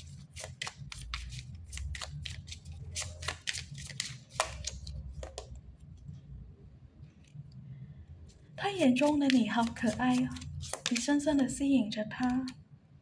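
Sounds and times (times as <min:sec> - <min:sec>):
cards snapping and sliding: 0:00.0 - 0:05.4, 0:08.8 - 0:11.1.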